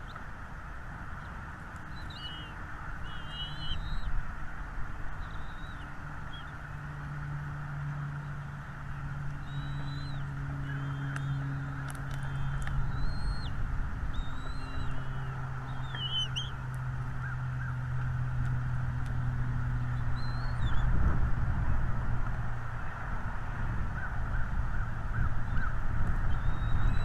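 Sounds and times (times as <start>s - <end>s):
small birds chirping: 0.0s - 0.2s, 1.2s - 4.2s, 5.1s - 6.9s, 8.2s - 17.9s, 19.7s - 21.0s, 24.0s - 27.0s
low hum and hiss: 0.0s - 27.0s.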